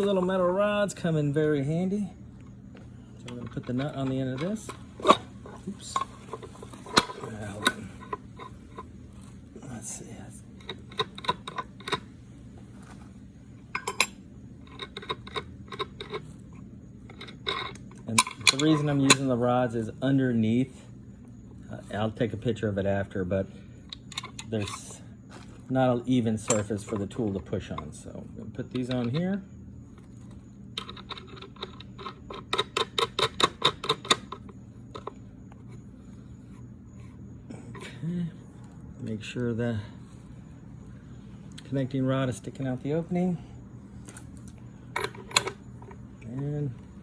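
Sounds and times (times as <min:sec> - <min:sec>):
small steel parts clinking: 0:13.7 - 0:16.4, 0:17.1 - 0:19.4, 0:26.2 - 0:27.8
metal rods clicking together: 0:17.1 - 0:19.3.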